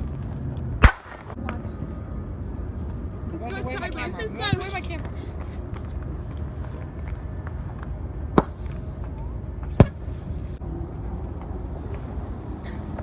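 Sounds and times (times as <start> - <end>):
low background rumble: 0.0 - 13.0
firework bangs: 0.8 - 1.4.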